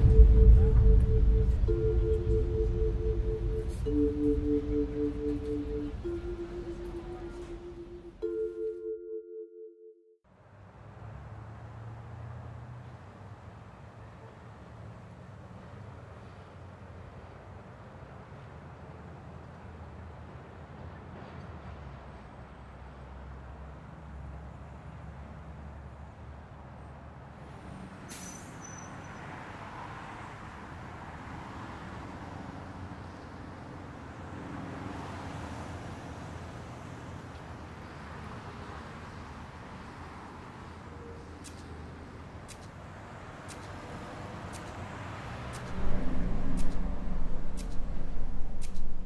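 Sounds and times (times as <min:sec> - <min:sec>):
loud low drone: 0:00.0 - 0:08.4, 0:45.6 - 0:49.0
passing traffic hum: 0:00.0 - 0:09.2, 0:10.3 - 0:49.0
sharp ticks: 0:41.4 - 0:49.0.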